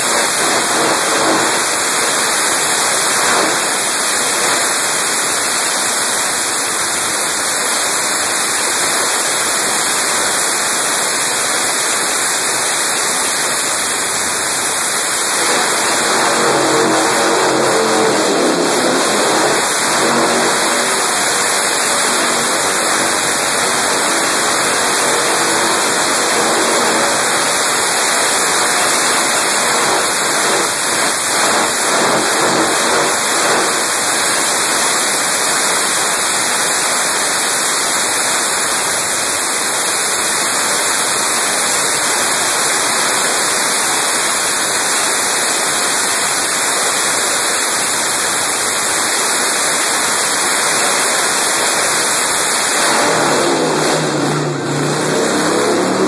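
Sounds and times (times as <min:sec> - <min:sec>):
motorcycle engine revving: 0:00.0 - 0:03.9, 0:15.1 - 0:34.8, 0:50.7 - 0:56.0.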